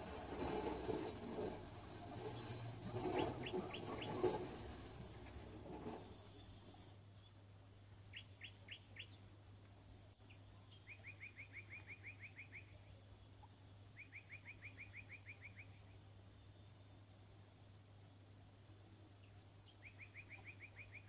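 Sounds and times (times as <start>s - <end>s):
songbird chirping and trilling: 2.4s - 4.6s, 7.2s - 9.3s, 10.2s - 16.0s, 19.2s - 21.0s.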